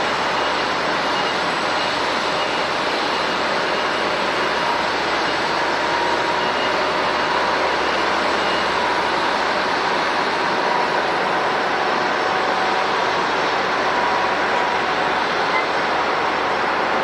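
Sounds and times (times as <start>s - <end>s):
jet engines rushing and whining: 0.0s - 17.0s.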